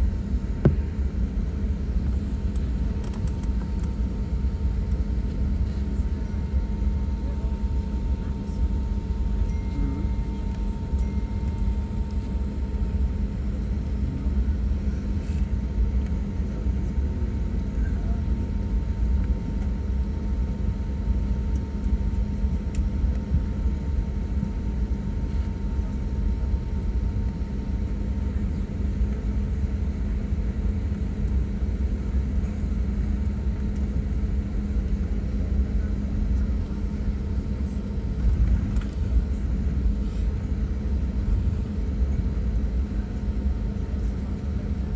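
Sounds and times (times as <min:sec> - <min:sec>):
constant cabin hum: 0:00.0 - 0:44.9
jet engines idling: 0:00.2 - 0:18.4.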